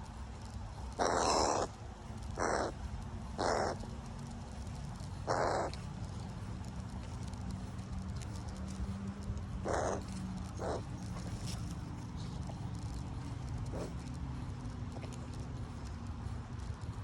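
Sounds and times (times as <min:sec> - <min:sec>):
crow cawing: 0:01.0 - 0:01.8, 0:02.4 - 0:03.9, 0:05.1 - 0:05.8, 0:09.6 - 0:10.9.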